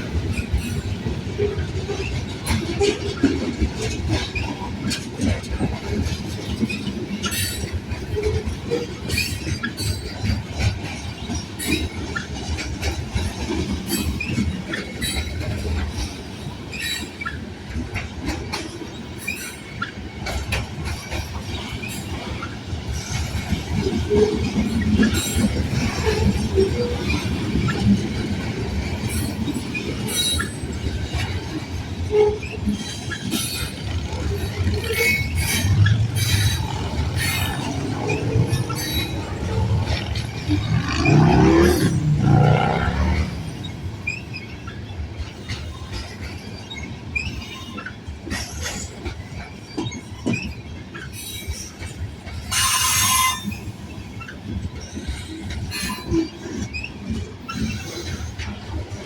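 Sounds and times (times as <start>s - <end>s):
train clicks and clanks: 0.0s - 59.0s
train wheels rumbling on rail: 0.0s - 59.0s
wheel squeals: 28.9s - 46.0s.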